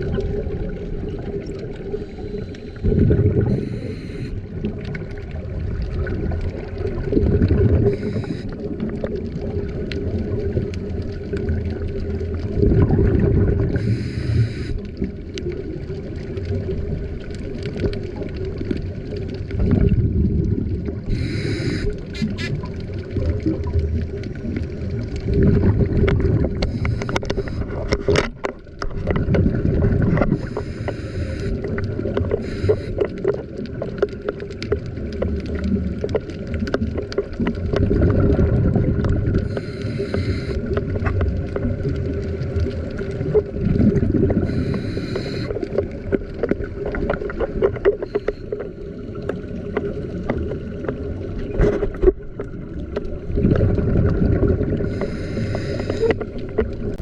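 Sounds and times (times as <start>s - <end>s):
underwater rumbling and bubbles: 0.0s - 57.0s
breathy hiss: 1.9s - 4.4s, 7.8s - 8.7s, 13.8s - 14.8s, 21.1s - 22.5s, 26.7s - 27.8s, 30.3s - 31.6s, 32.3s - 33.1s, 39.4s - 40.8s, 44.4s - 45.7s, 48.1s - 49.0s, 54.8s - 56.2s.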